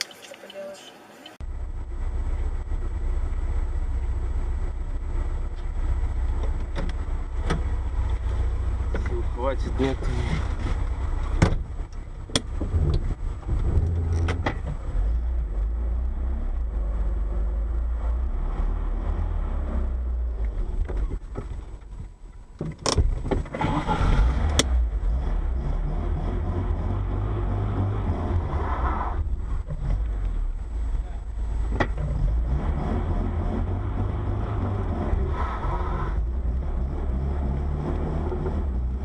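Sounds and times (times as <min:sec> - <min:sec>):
car road and engine rumble: 0:00.0 - 0:39.0
clatter: 0:01.7 - 0:15.7.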